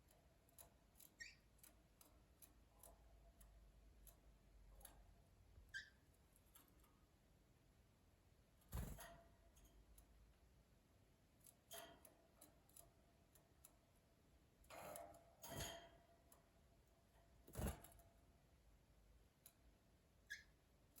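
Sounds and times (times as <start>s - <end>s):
faint bird chirp: 1.0s - 1.7s, 5.6s - 6.2s, 20.2s - 21.0s
birds moving in cage: 8.6s - 9.7s, 11.4s - 13.8s, 14.6s - 18.2s.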